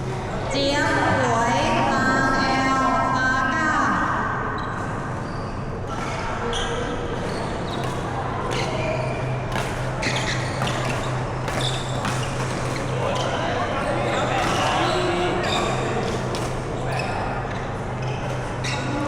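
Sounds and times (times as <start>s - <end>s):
shoes squeaking on court floor: 4.6s - 19.0s
racket hitting shuttlecock: 7.1s - 13.3s, 14.3s - 16.6s.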